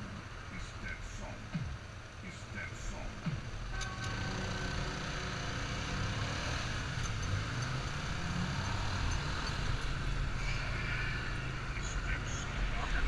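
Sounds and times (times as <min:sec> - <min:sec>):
road and wind noise: 0:00.0 - 0:13.0
motorcycle engine running: 0:03.0 - 0:10.3.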